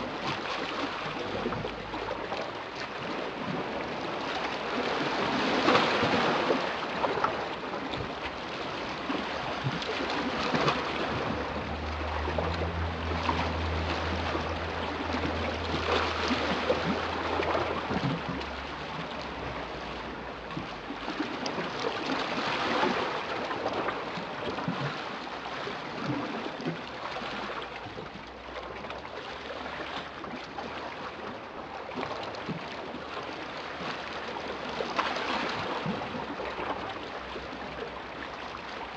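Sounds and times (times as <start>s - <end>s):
sea waves washing in: 0.0s - 38.9s
low steady hum: 8.0s - 21.8s.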